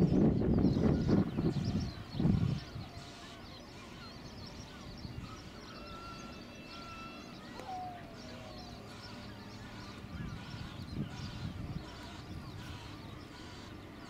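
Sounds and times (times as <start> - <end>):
birds whistling and chirping: 0.0 - 14.0
steady low rumble: 8.0 - 14.0.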